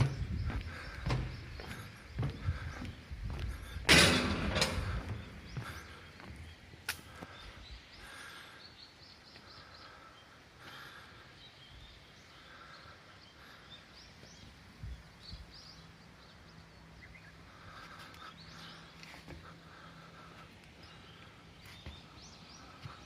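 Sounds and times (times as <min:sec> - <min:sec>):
low thumps: 0:00.0 - 0:06.0
birds chirping: 0:00.0 - 0:23.0.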